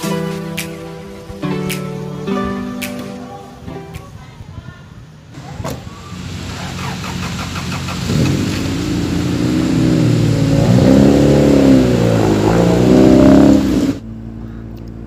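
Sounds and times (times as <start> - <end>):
car engine revving: 5.4 - 14.3.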